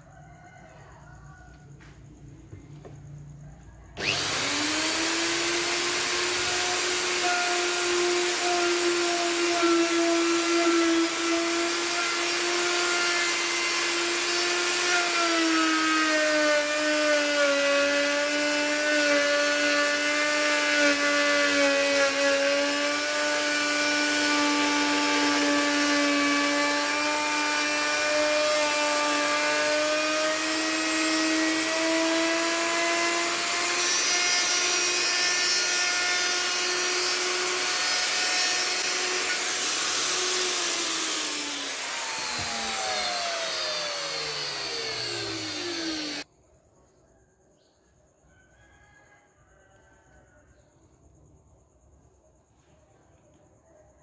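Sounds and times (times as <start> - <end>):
rasping hiss of cutting wood: 4.0 - 46.2
wood-carving machine motor whining: 4.0 - 46.2.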